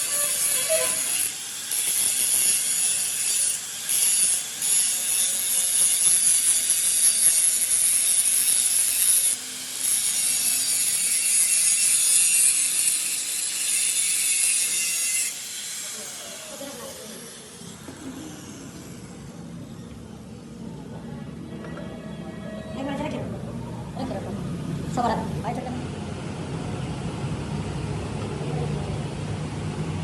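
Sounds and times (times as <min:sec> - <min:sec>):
metal grinding scraping hiss: 0:00.0 - 0:19.4.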